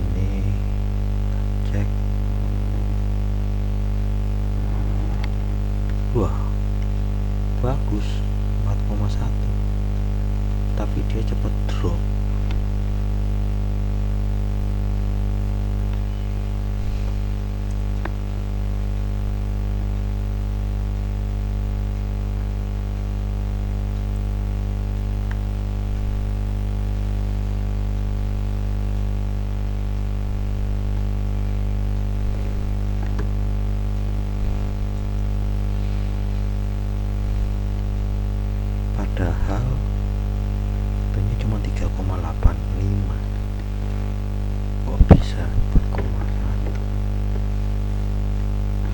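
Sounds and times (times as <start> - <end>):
electrical mains hum: 0.0 - 48.9
static: 0.0 - 48.9
faint ticks: 17.1 - 33.8.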